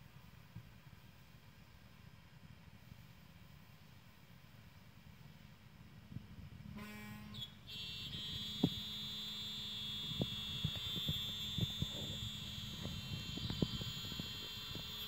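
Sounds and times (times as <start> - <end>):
milling machine whining: 10.0 - 15.0.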